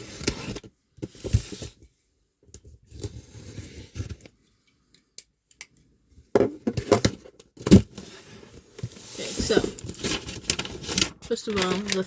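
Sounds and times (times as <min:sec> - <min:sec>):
cardboard packaging rustling: 0:06.8 - 0:12.0.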